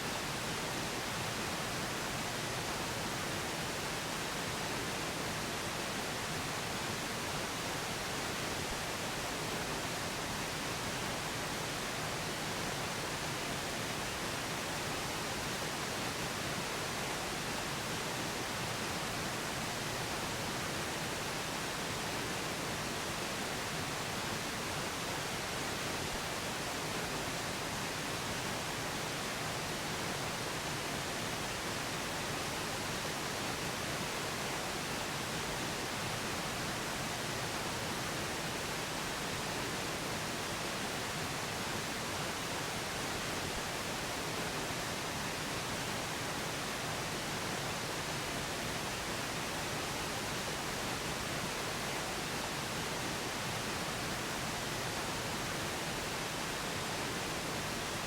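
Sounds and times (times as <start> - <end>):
steady pink noise hiss: 0.0 - 58.0.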